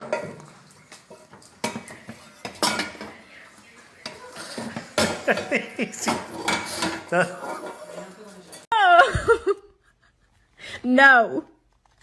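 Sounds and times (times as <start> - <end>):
cutlery and dishes clinking: 0.0 - 8.7.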